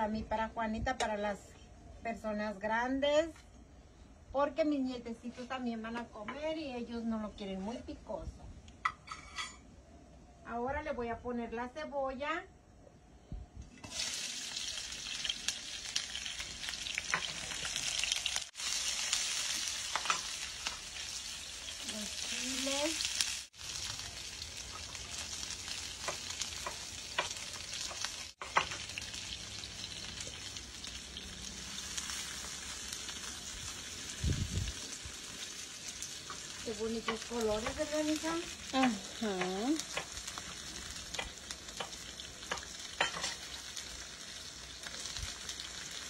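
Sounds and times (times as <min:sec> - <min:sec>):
onion and peppers sizzling in oil: 0:13.7 - 0:46.0.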